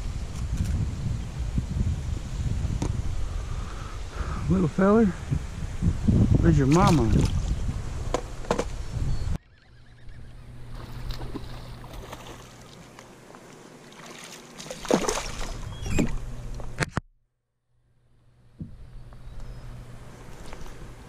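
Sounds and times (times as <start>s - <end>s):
water splashing around kayak: 6.6s - 8.6s, 10.7s - 16.4s.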